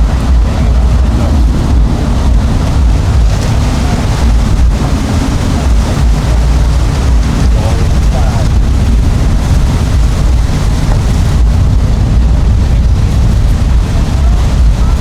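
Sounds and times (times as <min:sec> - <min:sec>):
motorboat engines running: 0:00.0 - 0:15.0
wind buffeting microphone: 0:00.0 - 0:15.0.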